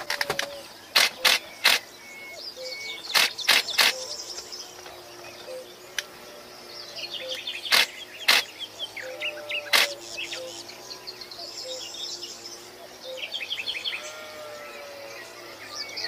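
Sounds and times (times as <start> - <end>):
songbirds chirping: 0.0 - 16.0
loud sharp clicks: 0.1 - 1.9, 3.1 - 4.0, 7.3 - 8.5, 9.7 - 10.0.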